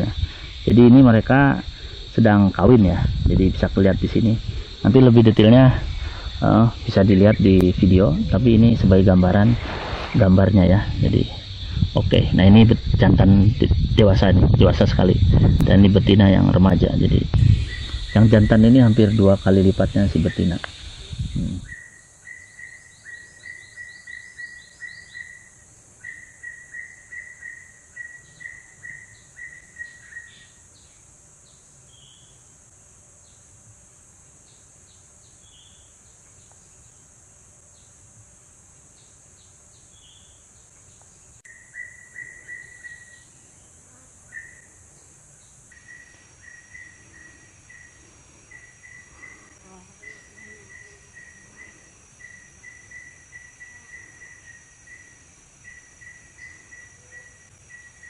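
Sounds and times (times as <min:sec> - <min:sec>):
insects chirping: 0:00.0 - 0:58.0
steady high hiss: 0:00.0 - 0:58.0.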